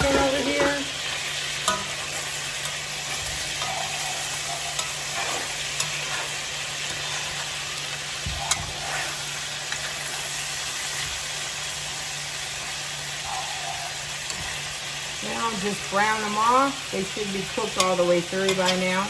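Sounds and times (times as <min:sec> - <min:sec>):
meatballs sizzling in a frying pan: 0:00.0 - 0:19.0.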